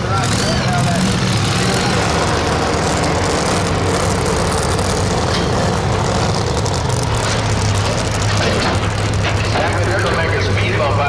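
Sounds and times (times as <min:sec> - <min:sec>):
truck engine running loud: 0:00.0 - 0:11.0.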